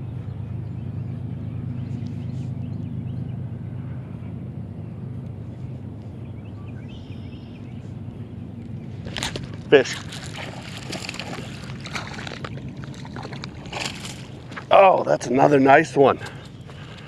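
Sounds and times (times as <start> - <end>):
low motor hum: 0.0 - 17.0
small birds chirping: 0.0 - 17.0.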